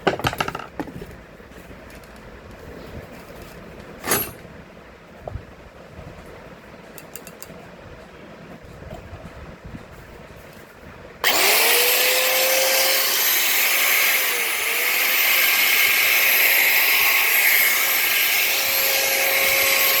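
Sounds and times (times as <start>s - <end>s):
marble cutter high whine: 11.2s - 20.0s.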